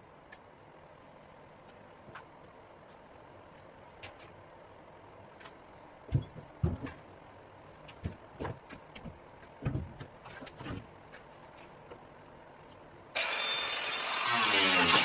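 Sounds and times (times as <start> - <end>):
faint background hum: 0.0 - 13.2
knocks and clunks: 6.1 - 7.1, 7.9 - 10.9.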